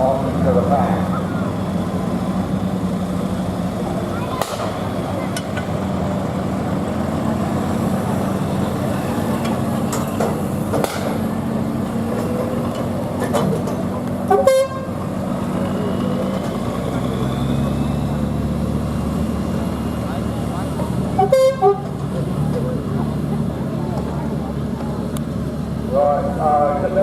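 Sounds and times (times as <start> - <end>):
diesel engine running: 0.0 - 27.0
short loud horn toot: 21.2 - 21.8.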